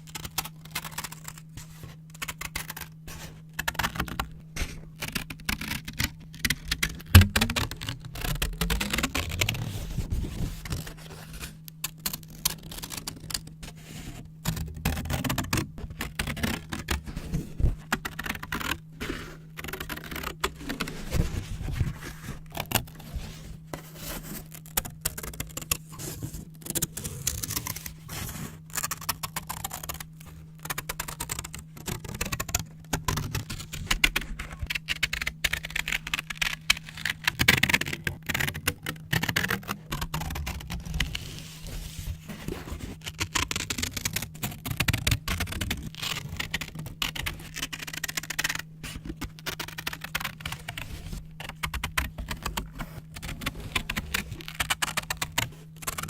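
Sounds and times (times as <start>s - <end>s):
paper rustling: 4.6s - 56.0s
scissors snipping paper: 14.4s - 21.9s, 24.0s - 41.8s.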